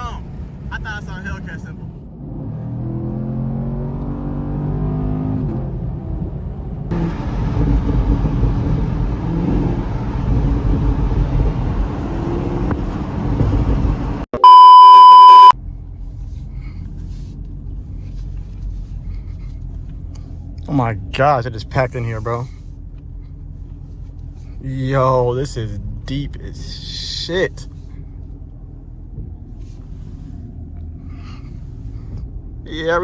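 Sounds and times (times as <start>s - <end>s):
car engine accelerating: 2.0s - 15.5s
electronic censor bleep: 14.4s - 15.6s.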